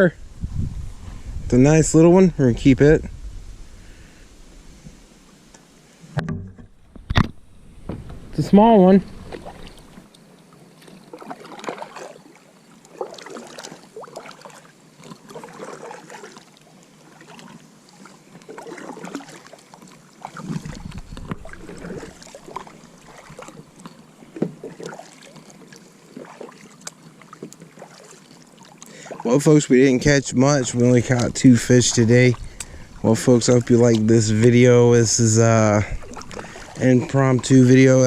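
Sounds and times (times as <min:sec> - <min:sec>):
low thump: 0:06.2 - 0:08.4
paddle splashing in water: 0:09.1 - 0:38.0.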